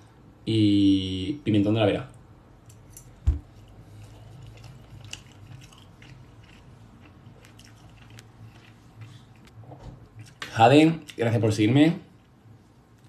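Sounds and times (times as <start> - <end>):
person chewing: 3.5 - 10.4.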